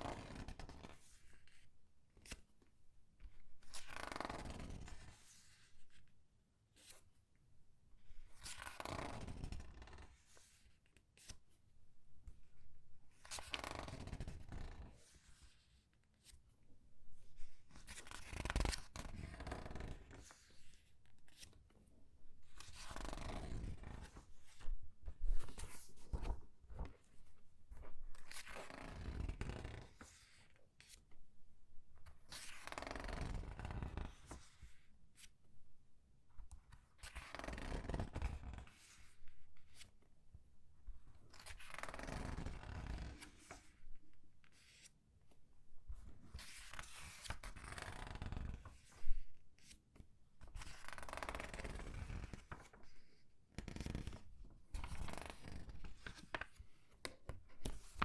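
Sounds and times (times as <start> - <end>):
paper pages rustling: 24.0 - 28.6, 54.8 - 58.0.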